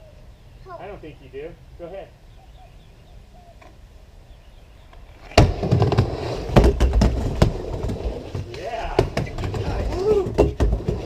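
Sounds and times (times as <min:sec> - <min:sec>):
skateboard wheels rolling: 0:05.0 - 0:11.0
skateboard slapping on ramp: 0:05.2 - 0:11.0.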